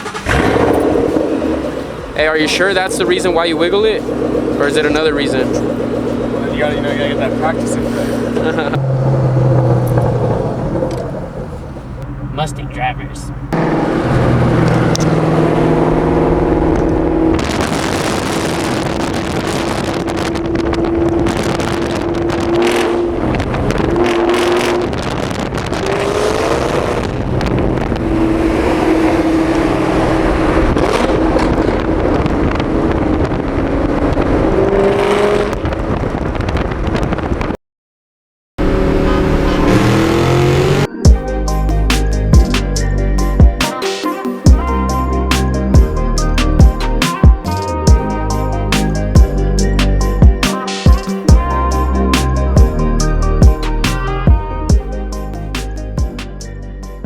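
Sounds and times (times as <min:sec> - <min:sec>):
car engine at high revs: 0:00.0 - 0:37.5, 0:38.6 - 0:43.6.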